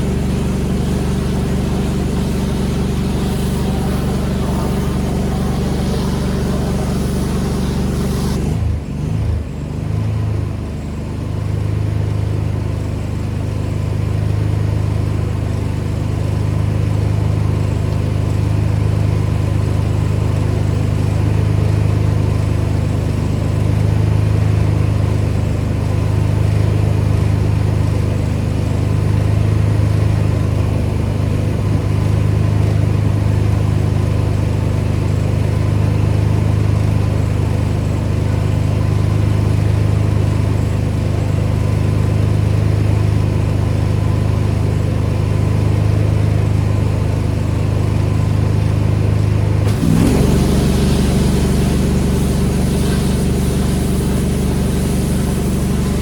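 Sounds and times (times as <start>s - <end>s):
high spray hiss: 0.0s - 8.6s, 49.7s - 56.0s
pressure washer engine running: 0.0s - 10.1s, 11.8s - 56.0s.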